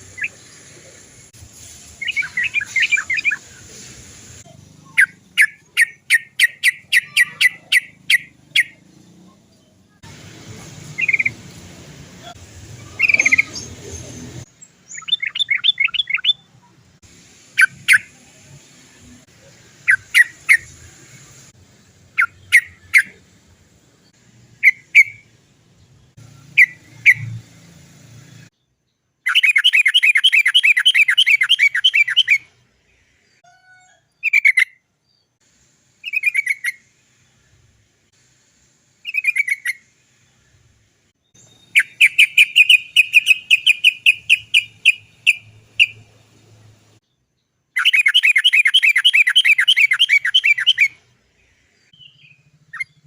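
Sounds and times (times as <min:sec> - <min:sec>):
bird calling in bubbly phrases: 0:04.8 - 0:08.8, 0:12.2 - 0:13.7, 0:47.8 - 0:51.0.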